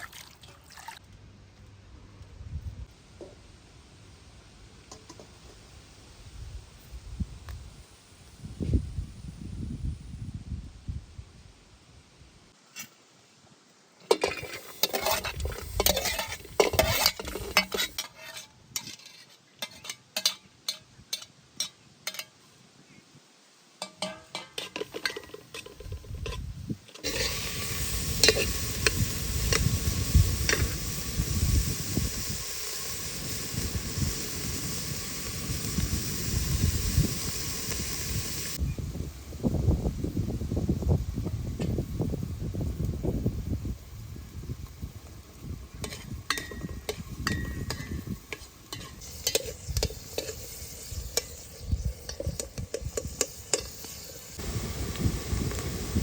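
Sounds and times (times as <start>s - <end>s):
utensil scraping in pot: 14.2s - 21.3s, 24.0s - 34.0s, 45.7s - 56.0s
food frying sizzle: 27.0s - 38.6s, 39.4s - 56.0s.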